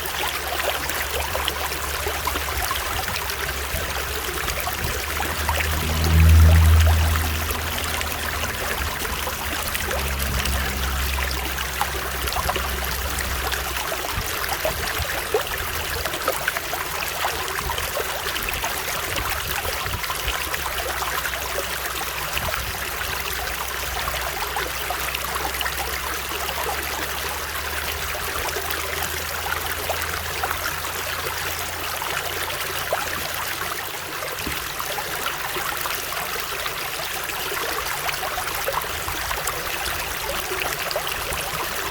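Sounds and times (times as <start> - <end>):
stream water flowing: 0.0 - 41.9
low rumble: 0.9 - 26.8.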